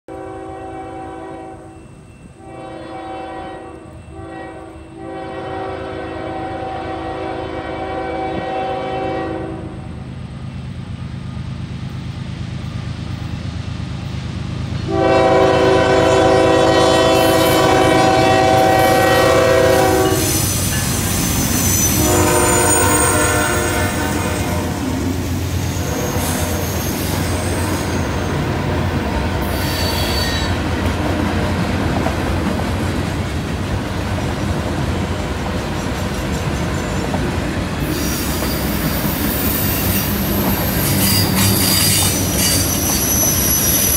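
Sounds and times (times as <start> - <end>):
locomotive air horn blasts: 0.1 - 9.9, 14.9 - 20.6, 21.6 - 28.4, 29.4 - 30.7.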